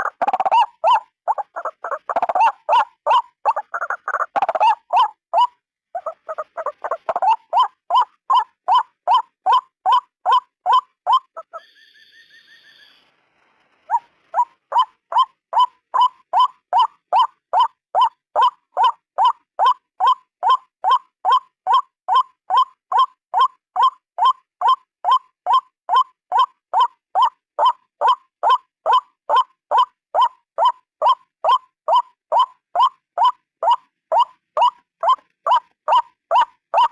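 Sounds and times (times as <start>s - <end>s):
waterhen calling harshly: 0.0s - 11.8s, 26.3s - 36.9s
high steady bird note: 7.2s - 13.1s.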